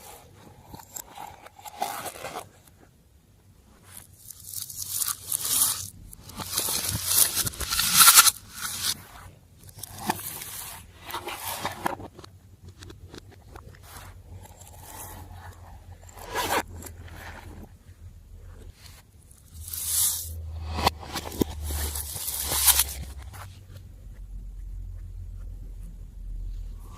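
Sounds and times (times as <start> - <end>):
slime squelching and scraping by hand: 3.8 - 9.1, 18.7 - 23.8.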